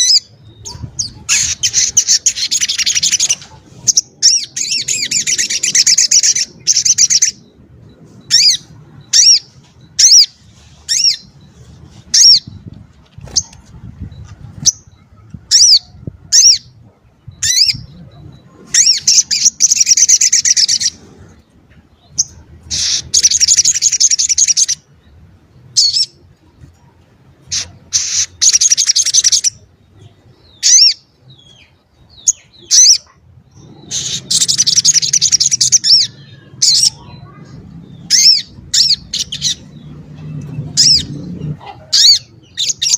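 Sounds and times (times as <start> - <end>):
songbird trilling: 0.0 - 12.7, 30.5 - 42.9.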